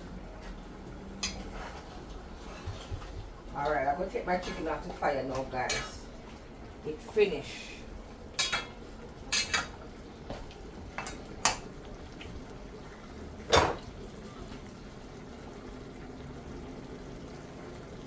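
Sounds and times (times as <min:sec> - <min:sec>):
metal pots and utensils clinking: 0:01.2 - 0:06.2, 0:08.3 - 0:12.3, 0:13.4 - 0:13.9.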